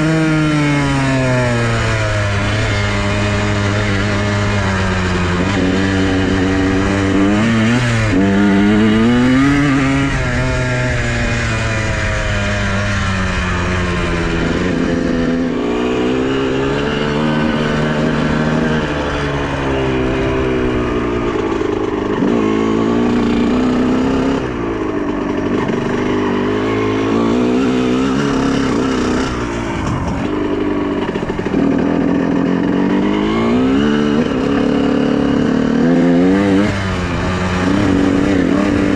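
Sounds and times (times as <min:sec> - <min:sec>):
two-stroke motorcycle engine revving: 0:00.0 - 0:38.9.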